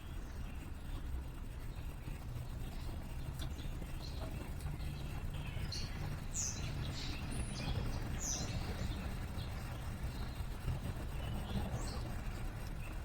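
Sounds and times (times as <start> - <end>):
small birds chirping: 4.8 - 13.0.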